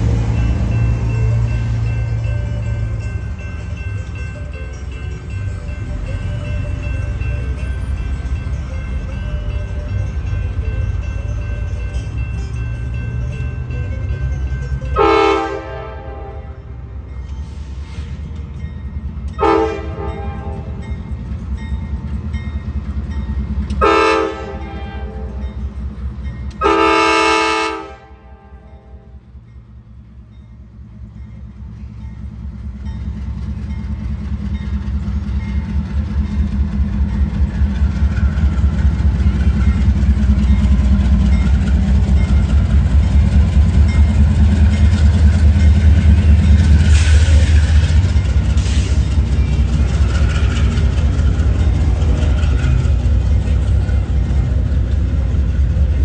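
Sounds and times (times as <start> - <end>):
freight cars rumbling on rails: 0.0 - 56.0
locomotive horn blasts: 14.9 - 16.8, 19.4 - 20.8, 23.8 - 25.4, 26.6 - 29.2.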